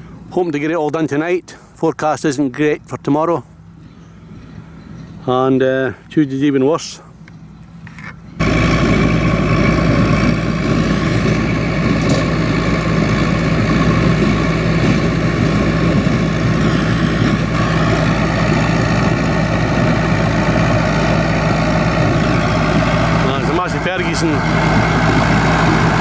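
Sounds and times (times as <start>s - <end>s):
tractor engine running: 8.3s - 26.0s.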